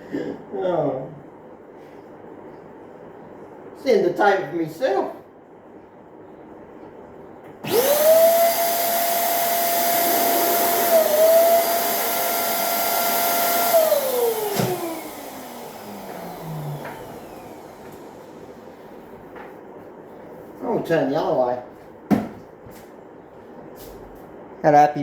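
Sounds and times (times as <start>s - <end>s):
balloon inflator motor whining: 7.6s - 18.6s.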